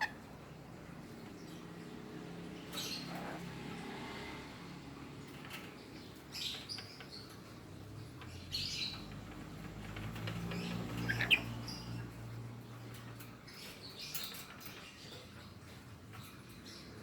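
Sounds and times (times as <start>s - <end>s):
parrot chirping calls: 0.0s - 0.4s, 10.7s - 11.9s.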